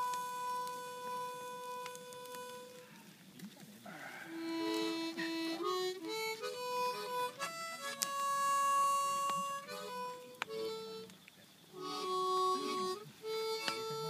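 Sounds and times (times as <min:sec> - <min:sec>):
harmonica playing slow melody: 0:00.0 - 0:03.0, 0:04.0 - 0:14.0.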